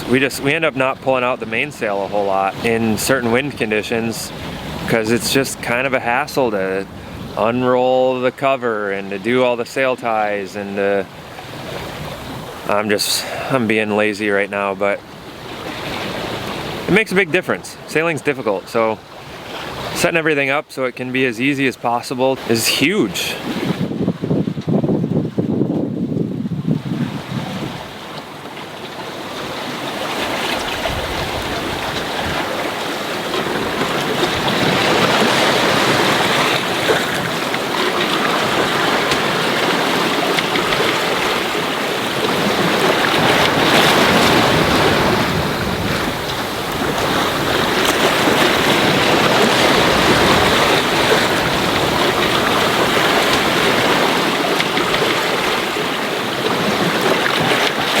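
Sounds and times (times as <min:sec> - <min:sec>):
wind buffeting microphone: 0:00.0 - 0:07.8, 0:11.1 - 0:12.9, 0:22.9 - 0:28.4, 0:29.4 - 0:58.0
water rushing along a hull: 0:00.0 - 0:58.0.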